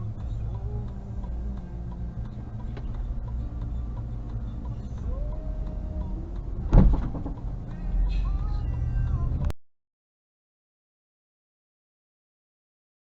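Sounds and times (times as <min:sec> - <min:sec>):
car road and engine rumble: 0:00.0 - 0:09.6
loud sharp thump: 0:06.7 - 0:07.4.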